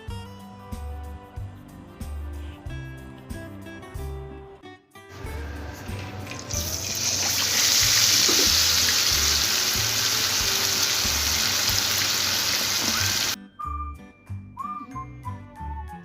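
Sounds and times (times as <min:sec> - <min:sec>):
rushing water hiss: 0:05.8 - 0:13.4.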